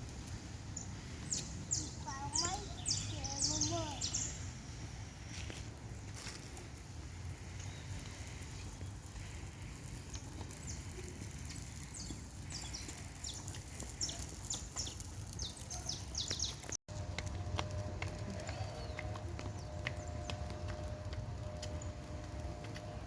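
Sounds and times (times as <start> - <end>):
birds chirping: 0.7 - 4.6, 10.1 - 16.8, 18.4 - 20.6.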